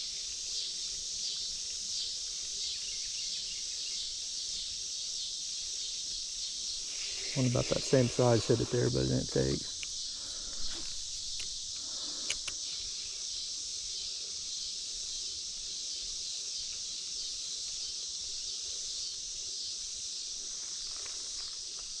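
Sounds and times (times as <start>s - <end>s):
insect chorus: 0.0s - 22.0s
faint clicks: 10.6s - 12.8s.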